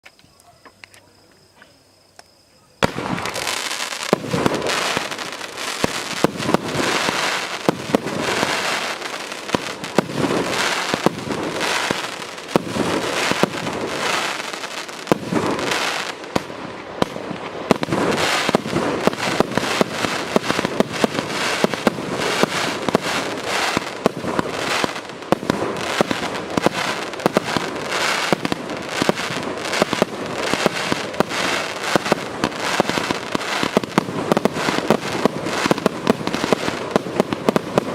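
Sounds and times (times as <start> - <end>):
firework cake firing shots: 2.8 - 3.5, 4.1 - 8.6, 9.5 - 37.9.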